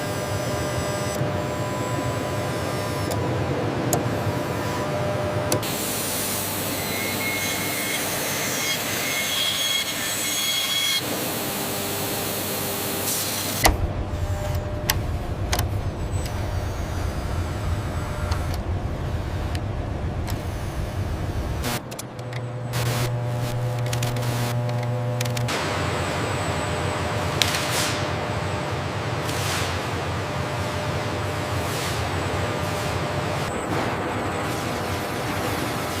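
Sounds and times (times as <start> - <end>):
machinery noise with faint tones: 0.0 - 36.0
sharp click: 23.7 - 25.6.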